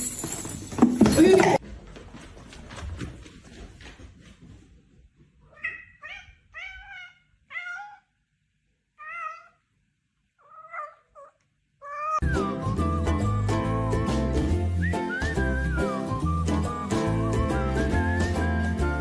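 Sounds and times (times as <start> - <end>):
cat meowing: 5.5 - 8.2, 9.0 - 9.6, 10.4 - 12.2.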